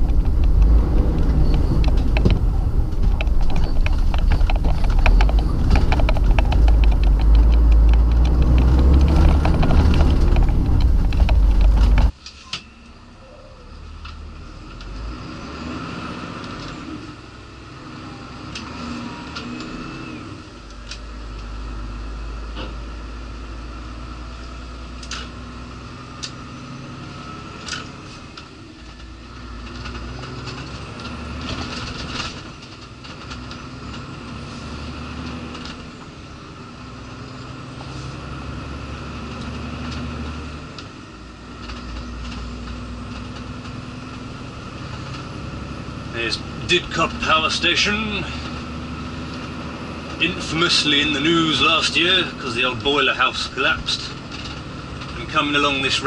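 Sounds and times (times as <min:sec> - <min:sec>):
cab clicks and rattles: 0:00.0 - 0:12.4, 0:27.5 - 0:34.4, 0:39.2 - 0:56.0
lorry diesel engine droning: 0:00.0 - 0:56.0.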